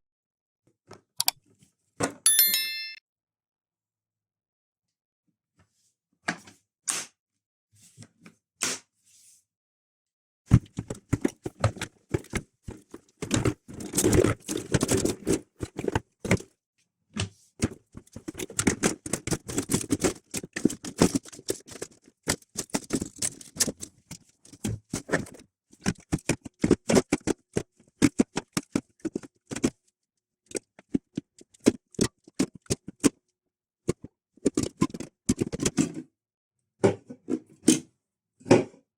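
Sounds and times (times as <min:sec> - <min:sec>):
plastic cooler clicks and scrapes: 0:10.6 - 0:16.5, 0:17.2 - 0:29.8, 0:33.9 - 0:36.1.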